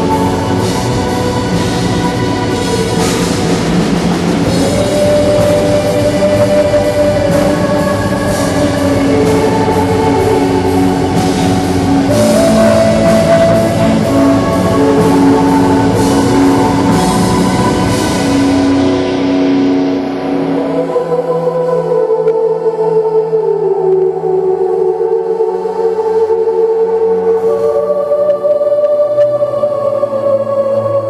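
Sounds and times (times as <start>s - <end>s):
drums steady beat: 0.0s - 19.6s.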